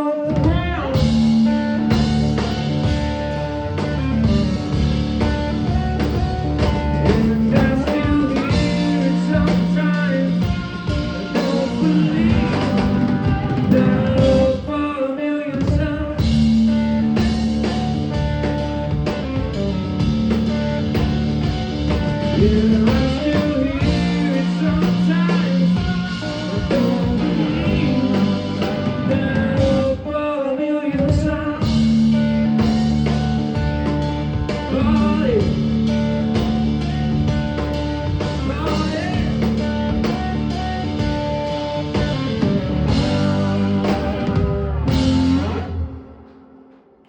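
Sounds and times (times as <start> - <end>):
electric guitar notes bending: 0.0 - 14.8, 15.7 - 30.2, 31.0 - 47.0
blues-rock band playing: 0.0 - 30.3, 30.9 - 47.0.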